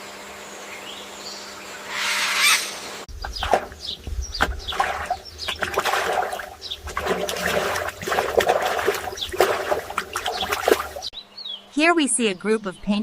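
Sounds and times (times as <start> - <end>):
water splashing and trickling: 3.1 - 11.1.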